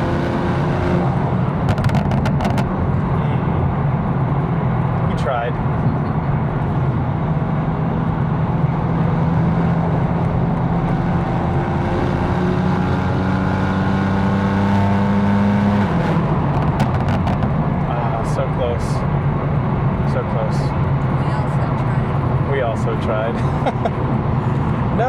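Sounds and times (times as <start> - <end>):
car engine and exhaust droning: 0.0 - 25.0.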